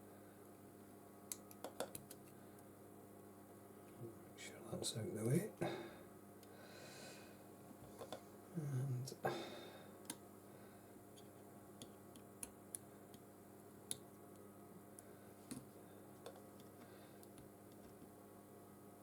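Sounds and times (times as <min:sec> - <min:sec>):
room hum: 0:00.0 - 0:19.0
small tool clicks and taps: 0:01.3 - 0:02.4.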